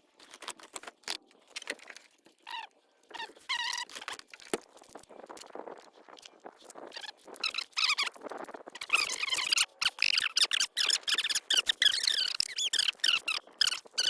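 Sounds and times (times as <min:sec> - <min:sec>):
short wavering squeaks: 0:06.9 - 0:08.2, 0:08.8 - 0:14.0.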